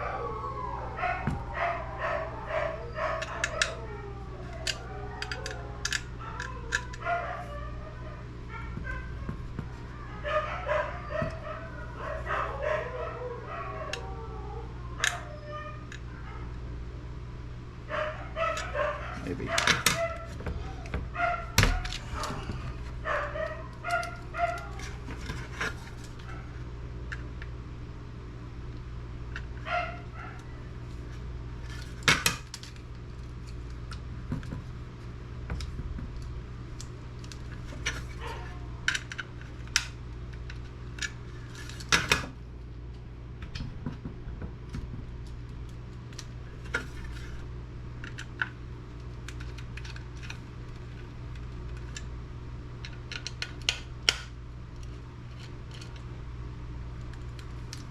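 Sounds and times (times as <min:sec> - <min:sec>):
dog yipping: 0:00.0 - 0:16.5, 0:17.9 - 0:22.2, 0:23.0 - 0:24.9.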